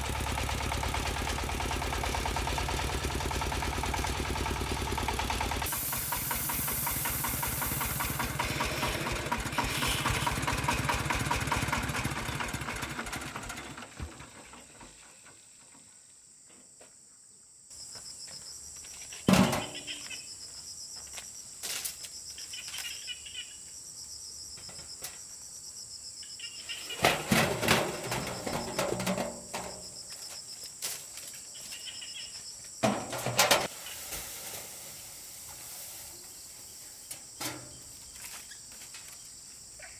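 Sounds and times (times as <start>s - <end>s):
engine running steadily: 0.0s - 15.1s
insects droning: 5.6s - 10.4s, 14.4s - 39.9s.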